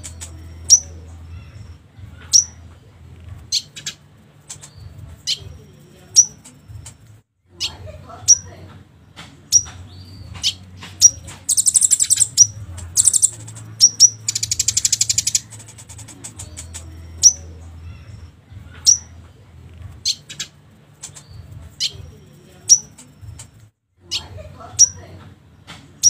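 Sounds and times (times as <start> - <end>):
bird chirping: 2.3 - 2.6, 9.5 - 18.2
high buzzing bird trills: 10.4 - 17.5.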